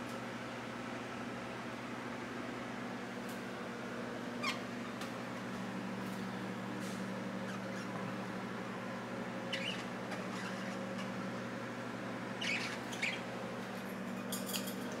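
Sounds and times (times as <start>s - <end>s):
steady low hum: 0.0s - 15.0s
budgerigars chirping and squawking: 9.5s - 11.2s, 12.4s - 13.3s.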